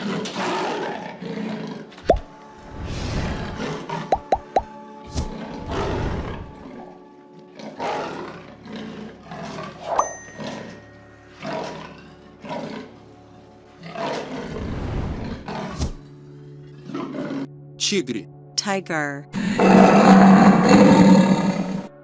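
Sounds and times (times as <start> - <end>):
lion roaring: 0.0 - 4.1, 5.1 - 6.9, 7.6 - 9.8, 11.4 - 13.0, 13.8 - 16.0, 16.8 - 17.5, 19.4 - 21.9
background music: 1.1 - 14.6, 15.3 - 22.0.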